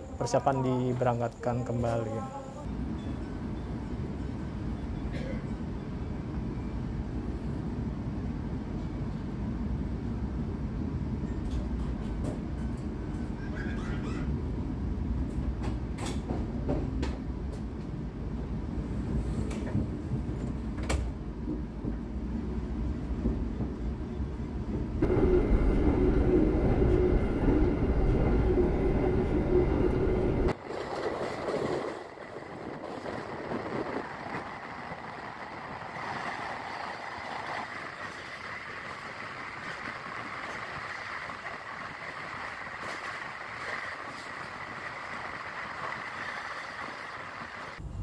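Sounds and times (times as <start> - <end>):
passenger train rumbling: 0.0 - 48.0
low hum: 24.9 - 30.6.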